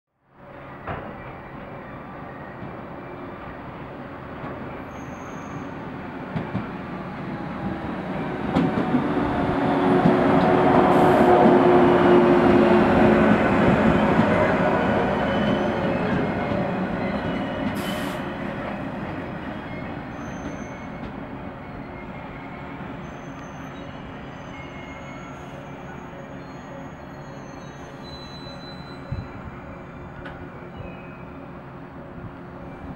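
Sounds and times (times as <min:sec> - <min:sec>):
electric train rumbling: 0:00.4 - 0:32.9.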